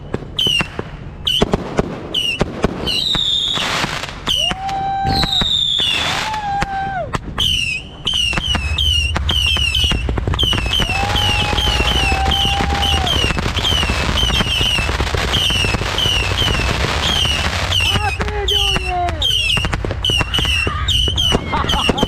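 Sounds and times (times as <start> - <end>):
fireworks cracking and banging: 0.0 - 22.0
whistle-like tone: 4.3 - 6.1, 7.4 - 17.8
low rumble: 8.4 - 20.0.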